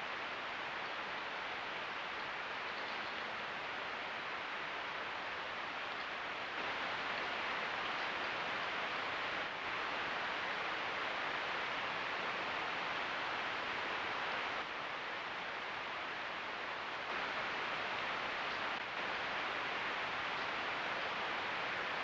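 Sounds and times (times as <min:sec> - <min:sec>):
microphone hiss: 0:00.0 - 0:22.0.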